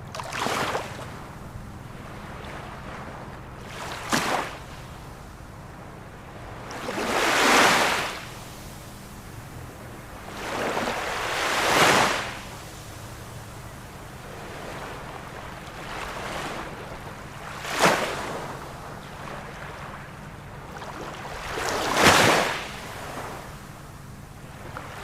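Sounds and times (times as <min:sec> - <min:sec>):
ocean waves washing in: 0:06.4 - 0:13.3.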